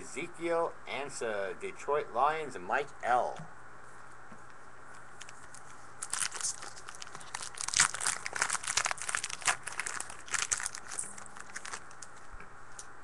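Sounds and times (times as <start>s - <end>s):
foil wrapper crinkling: 5.2s - 12.2s.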